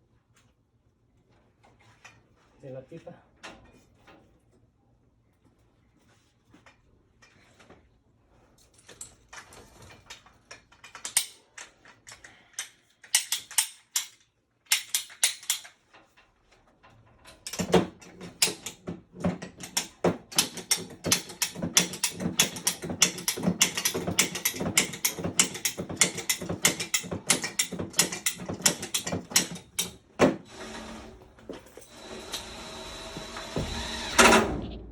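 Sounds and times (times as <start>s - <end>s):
ratchet clicking on metal: 12.6s - 15.8s.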